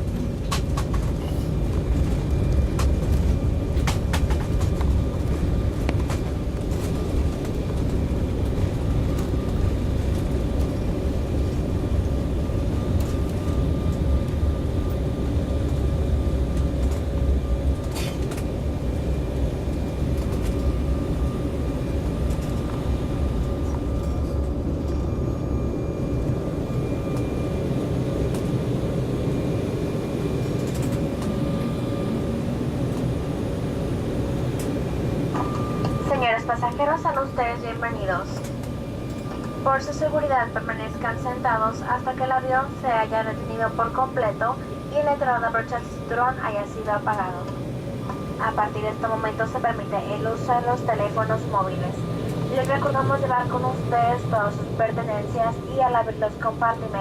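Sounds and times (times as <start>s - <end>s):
heavy low runway rumble: 0.0s - 57.0s
jet engine hum: 0.0s - 57.0s.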